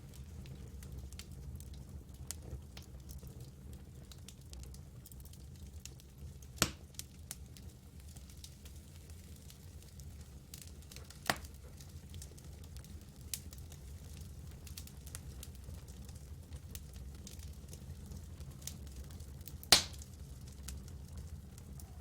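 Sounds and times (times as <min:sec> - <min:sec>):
campfire crackling: 0:00.0 - 0:22.0
sharp fire pops: 0:06.6 - 0:07.0, 0:10.6 - 0:11.6, 0:19.4 - 0:20.2.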